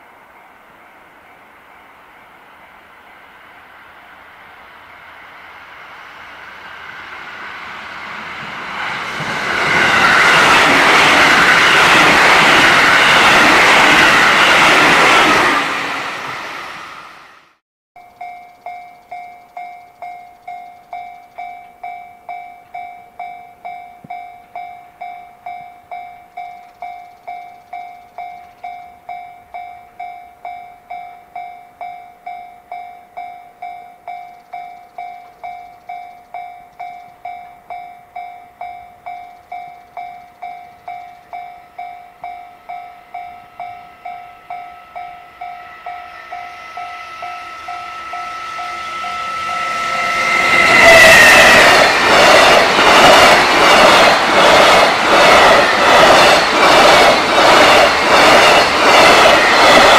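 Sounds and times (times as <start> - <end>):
train passing: 0.0 - 59.9
level crossing warning bell: 18.0 - 54.2.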